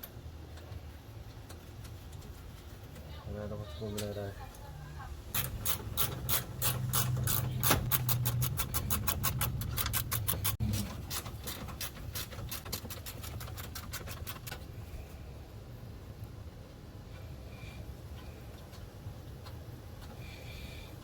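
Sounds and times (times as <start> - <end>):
ratchet wrench clicking: 5.4 - 14.5.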